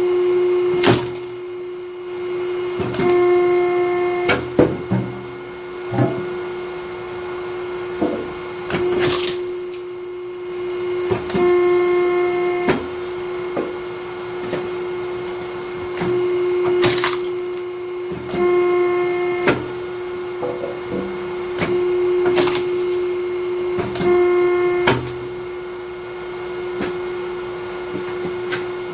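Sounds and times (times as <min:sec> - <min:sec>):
hydraulic pump hum: 0:00.0 - 0:28.9.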